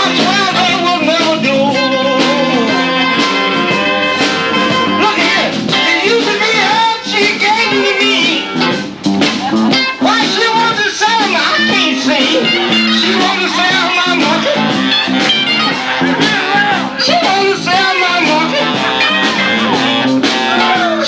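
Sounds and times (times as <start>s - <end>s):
live band with electric guitar: 0.0s - 21.0s
wavering singing voice: 10.0s - 15.0s.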